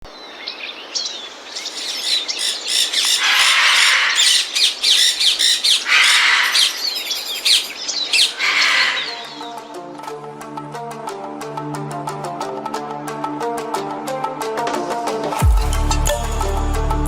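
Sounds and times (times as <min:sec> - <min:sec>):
parakeet chirping and whistling: 0:01.6 - 0:09.5
parakeet harsh screeches: 0:01.7 - 0:09.4.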